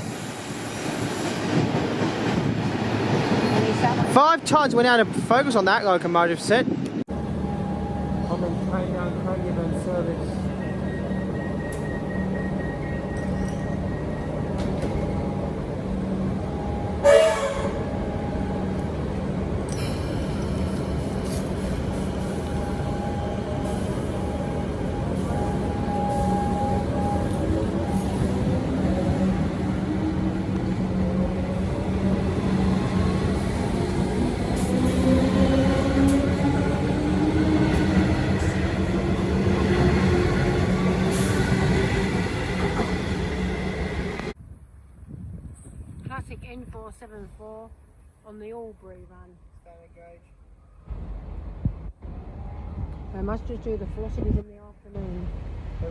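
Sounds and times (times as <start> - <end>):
electric train rumbling: 0.0 - 49.2, 50.8 - 55.9
train horn blast: 16.5 - 18.9.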